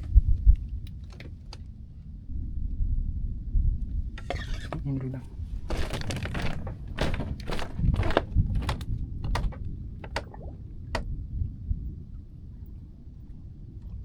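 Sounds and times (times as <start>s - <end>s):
irregular knocks and scuffs: 5.6s - 10.4s.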